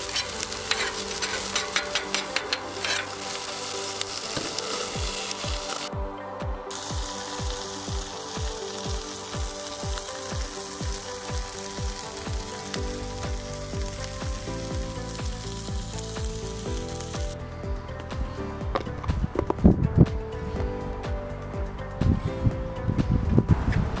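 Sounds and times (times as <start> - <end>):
fish sizzling on griddle: 0.0 - 5.9, 6.7 - 17.4
background music with beat: 0.0 - 24.0.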